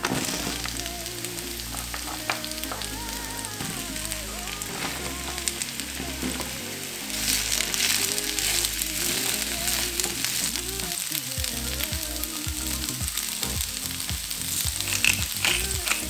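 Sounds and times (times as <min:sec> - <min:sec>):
background music: 0:00.0 - 0:16.0
vegetables sizzling in a frying pan: 0:04.8 - 0:16.0.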